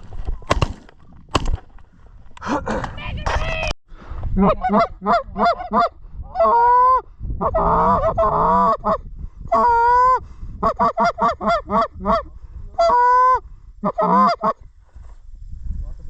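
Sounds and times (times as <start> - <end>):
goose honking and clucking: 4.4 - 6.6, 7.4 - 9.9, 10.6 - 14.6.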